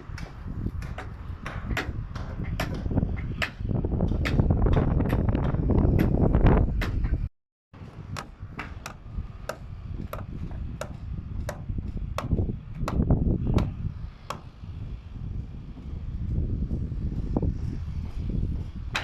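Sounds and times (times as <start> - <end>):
hammers striking timber: 0.0 - 6.2, 8.1 - 14.5.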